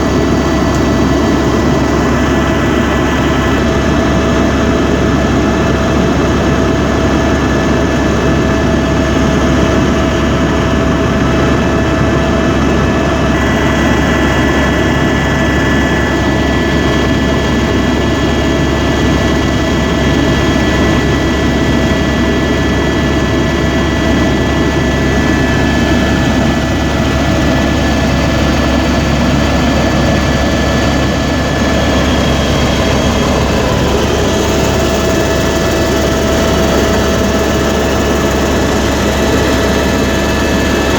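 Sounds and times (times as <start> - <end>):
helicopter engine and rotor: 0.0 - 40.9
higher whine: 11.6 - 40.9.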